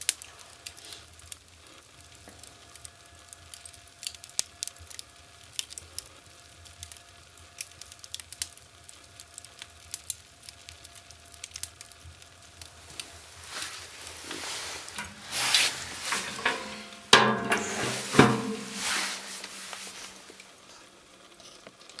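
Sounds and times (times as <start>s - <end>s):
wood fire crackling and popping: 0.0s - 22.0s
rushing hiss: 12.8s - 20.4s
sharp knocks: 15.0s - 19.4s.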